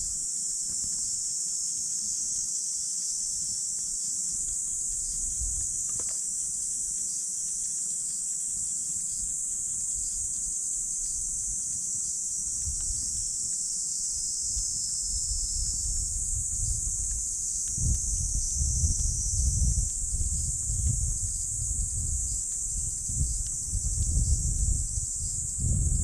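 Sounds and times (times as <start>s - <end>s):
insects chirping: 0.0s - 26.0s
wind rumble on microphone: 4.3s - 6.1s, 9.0s - 26.0s.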